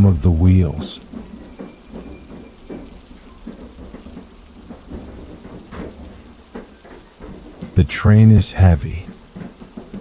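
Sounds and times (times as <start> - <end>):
heavy rain: 0.0 - 10.0
train rumble: 0.0 - 10.0
wheels knocking over rail joints: 0.0 - 10.0.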